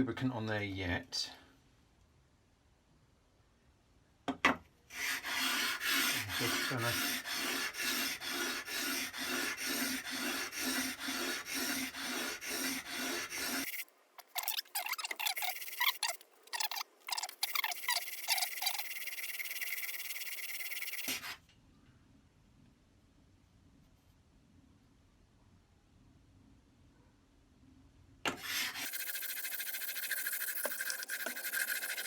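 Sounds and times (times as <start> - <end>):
blade rasping on sandpaper: 4.9 - 21.4, 28.4 - 32.0
irregular scrapes and clicks: 28.3 - 32.0.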